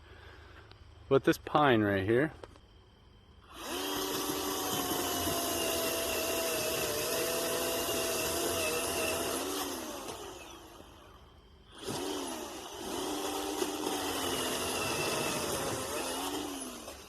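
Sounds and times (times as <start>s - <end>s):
electric chainsaw whining: 3.5s - 17.0s.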